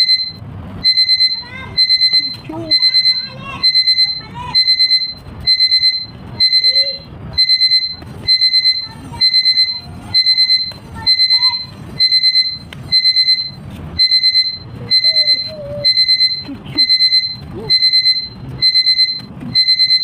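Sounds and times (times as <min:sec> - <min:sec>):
electronic alarm beeping: 0:00.0 - 0:20.0.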